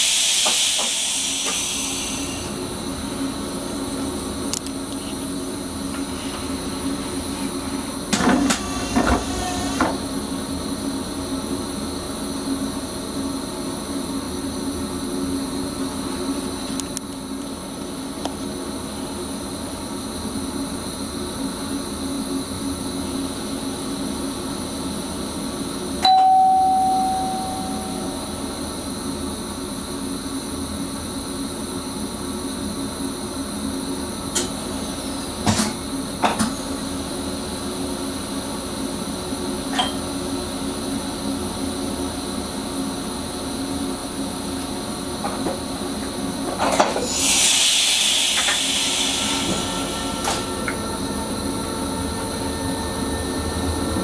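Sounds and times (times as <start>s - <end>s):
rush of hiss: 0.0s - 2.6s, 47.0s - 50.2s
electric train rumble: 0.0s - 54.0s
bell-like ding: 26.0s - 28.4s.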